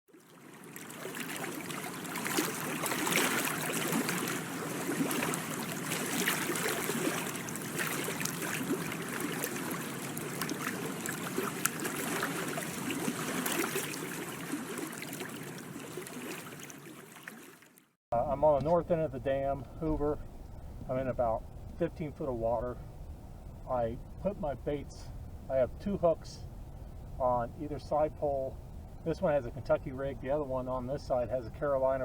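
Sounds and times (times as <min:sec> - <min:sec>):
water lapping against boat: 0:00.1 - 0:20.2.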